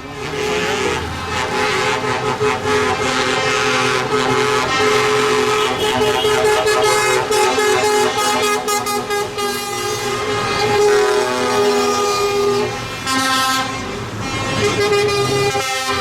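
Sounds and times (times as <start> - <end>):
tractor engines passing: 0.0 - 16.0
vehicle horns sounding: 0.1 - 16.0.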